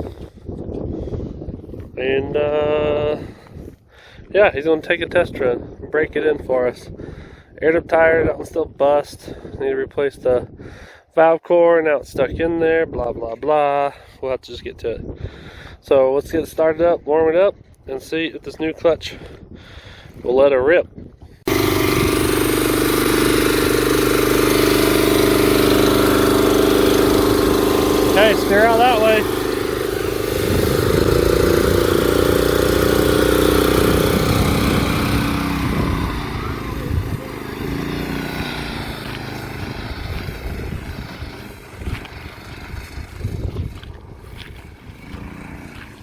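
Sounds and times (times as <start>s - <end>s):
go-kart engine idling: 21.5s - 43.2s, 44.8s - 46.0s.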